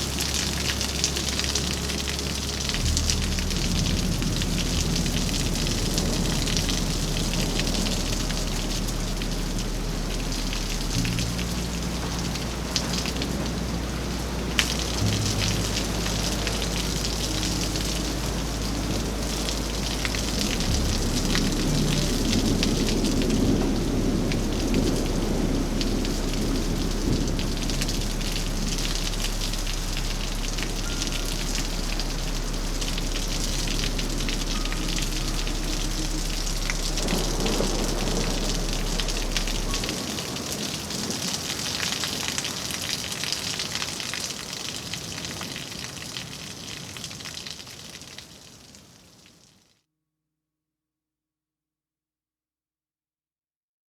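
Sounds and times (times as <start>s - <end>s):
low steady hum: 0.0s - 42.5s
distant thunder rumble: 0.0s - 42.9s
heavy rain on hard surfaces: 0.0s - 49.6s.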